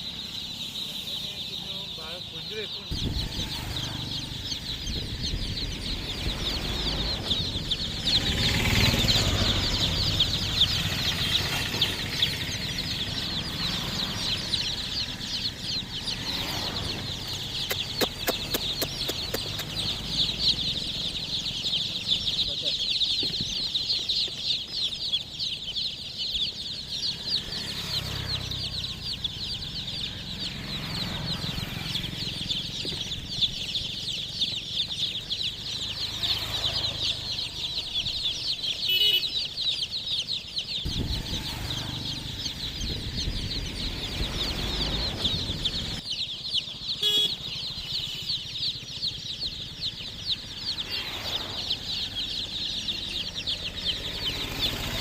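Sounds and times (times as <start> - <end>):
chicks peeping: 0.0 - 55.0.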